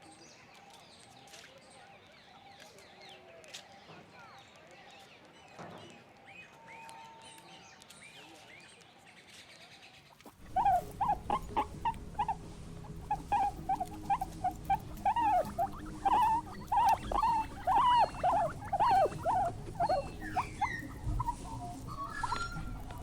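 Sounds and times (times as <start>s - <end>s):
small animal squeaking: 10.3s - 23.0s
steady low hum: 10.4s - 23.0s.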